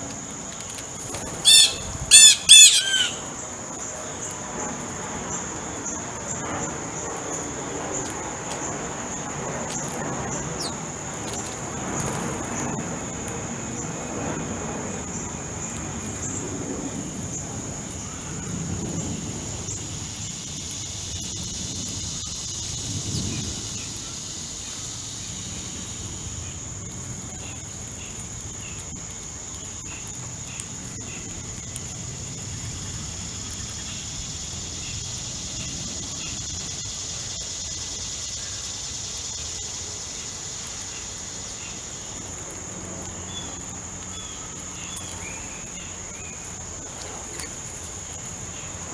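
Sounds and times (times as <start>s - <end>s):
crickets droning: 0.0s - 48.9s.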